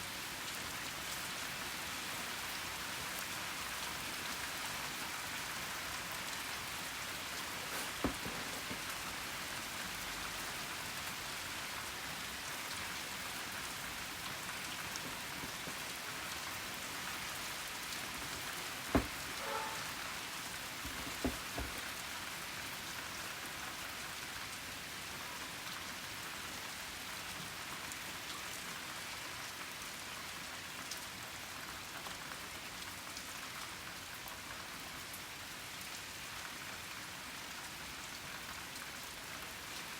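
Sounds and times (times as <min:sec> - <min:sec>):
steady rain falling: 0:00.0 - 0:39.9
sharp taps: 0:18.2 - 0:19.8, 0:20.9 - 0:21.9.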